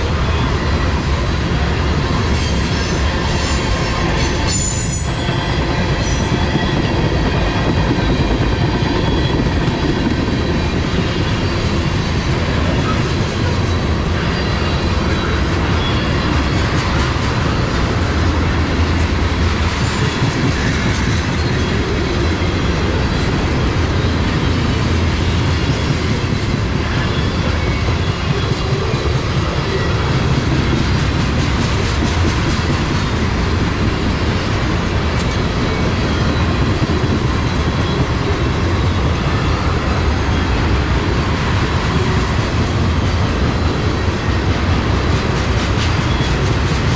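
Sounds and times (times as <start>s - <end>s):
freight train cars rolling past: 0.0s - 46.9s
wheels clickety-clack on rails: 0.0s - 46.9s.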